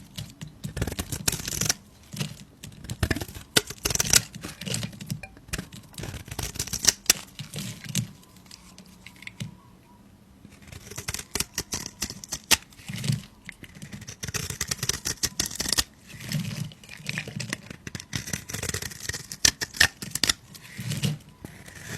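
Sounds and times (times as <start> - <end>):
knife cutting soap: 10.5 - 21.9.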